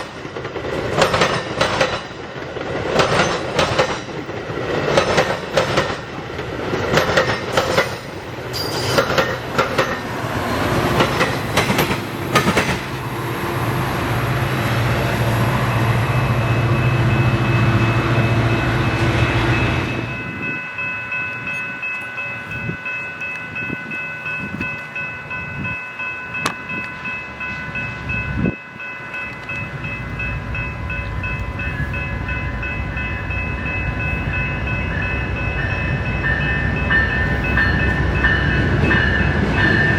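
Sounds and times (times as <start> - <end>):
train wheels clacking over rail joints: 0.0 - 10.1, 10.9 - 13.0
low train engine hum: 0.0 - 39.9
steady high ringing tones: 15.3 - 39.9.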